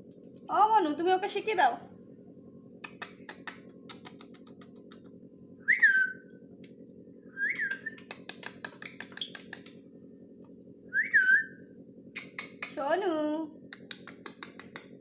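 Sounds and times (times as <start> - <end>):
parrot whistles: 5.7 - 6.2, 7.4 - 8.1, 10.9 - 11.6.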